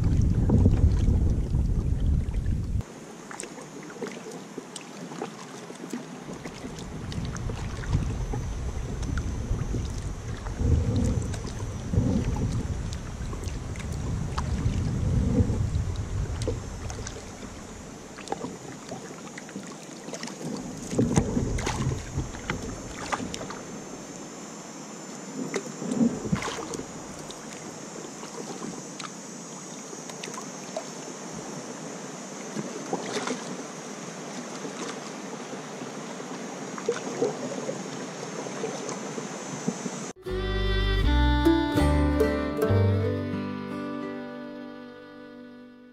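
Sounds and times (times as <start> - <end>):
wind buffeting microphone: 0.0 - 2.8, 6.7 - 18.0
paddle splashes: 0.0 - 24.4, 25.1 - 40.1
water against hull: 0.0 - 40.2.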